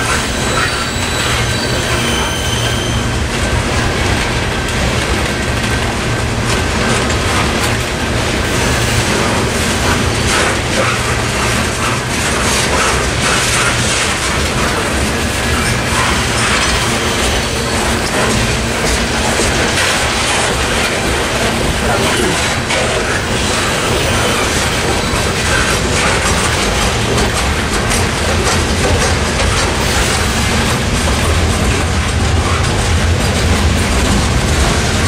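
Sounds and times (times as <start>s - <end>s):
freight train rumble: 0.0s - 35.0s
wheels clacking over rail joints: 0.0s - 35.0s
faint wheel squeal: 0.1s - 3.1s.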